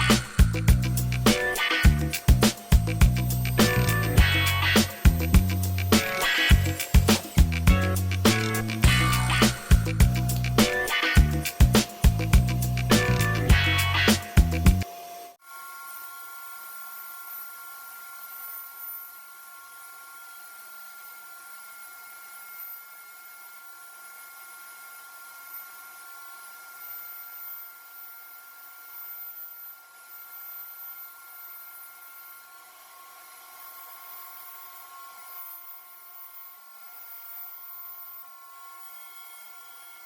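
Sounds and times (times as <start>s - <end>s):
music: 0.0s - 15.4s
thin high whine: 0.0s - 20.2s.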